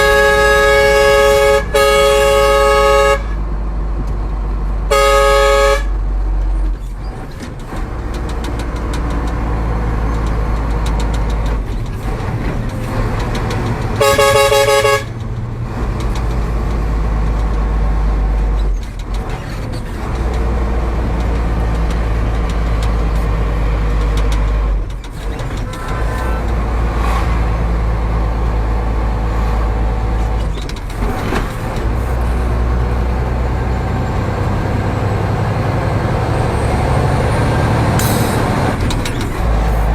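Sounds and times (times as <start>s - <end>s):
truck horn blast: 0.0s - 3.5s, 4.9s - 6.0s, 14.0s - 15.2s, 25.5s - 27.6s
truck engine running: 0.0s - 39.9s.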